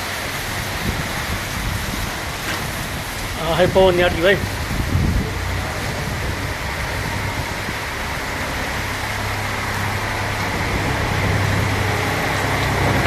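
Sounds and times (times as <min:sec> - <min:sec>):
heavy rain: 0:00.0 - 0:13.0
strong wind rumble: 0:00.0 - 0:13.0.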